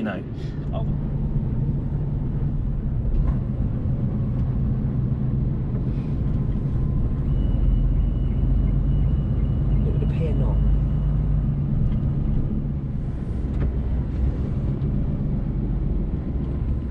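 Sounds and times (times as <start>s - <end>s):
lorry diesel engine droning: 0.0s - 16.9s.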